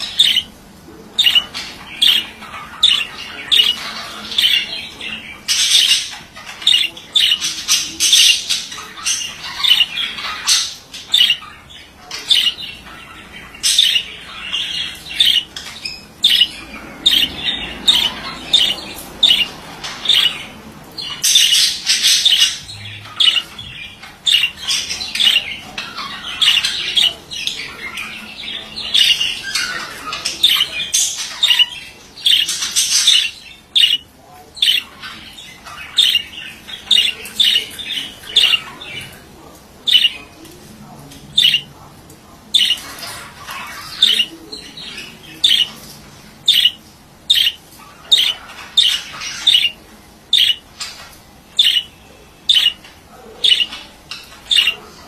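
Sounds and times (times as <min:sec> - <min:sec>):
budgerigar squawks: 0:00.0 - 0:00.5, 0:42.6 - 0:44.3, 0:46.5 - 0:50.6, 0:51.6 - 0:51.9, 0:52.5 - 0:52.8, 0:53.4 - 0:53.8
budgerigar warbling chatter: 0:00.0 - 0:40.4, 0:41.3 - 0:41.9, 0:42.5 - 0:55.0.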